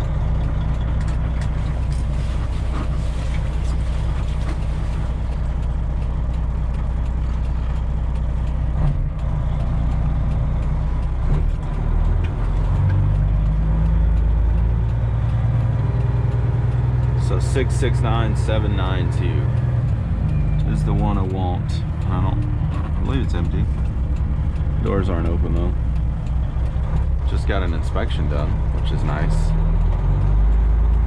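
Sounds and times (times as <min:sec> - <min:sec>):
truck diesel engine running: 0:00.0 - 0:31.0.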